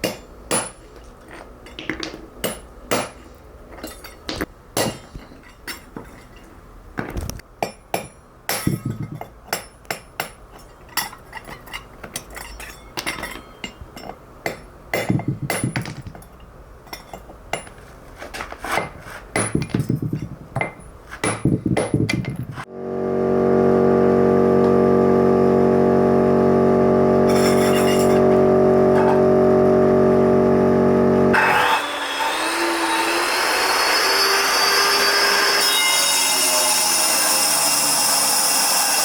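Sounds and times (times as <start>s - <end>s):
metal tools tapping stone: 7.6s - 17.8s, 18.8s - 22.6s.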